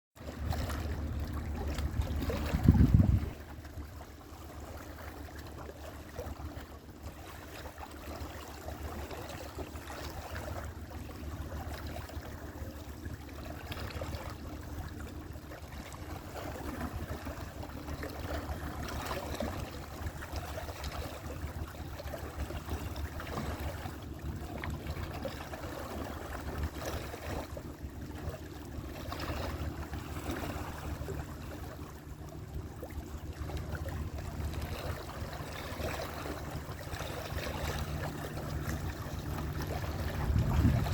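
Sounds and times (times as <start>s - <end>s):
sea water washing and lapping: 0.2s - 40.9s
steady low rumble: 0.2s - 40.9s.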